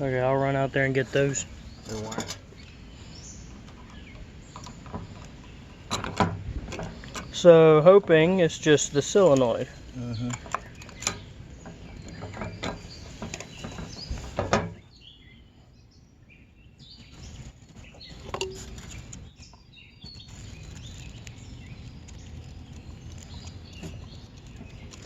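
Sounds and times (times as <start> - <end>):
handling clicks and knocks: 3.6 - 14.8, 18.0 - 25.0
faint bird chirps: 9.7 - 25.0.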